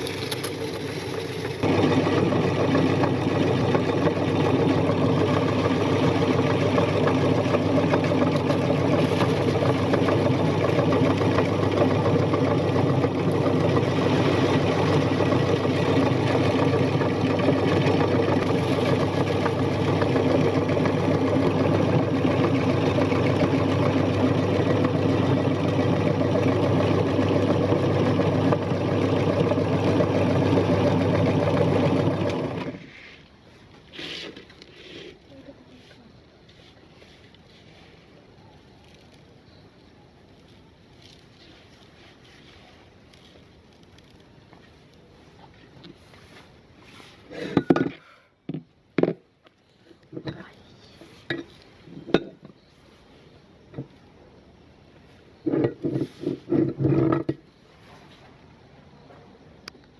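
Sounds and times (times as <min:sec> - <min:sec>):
electric meat grinder running: 0:00.0 - 0:32.8.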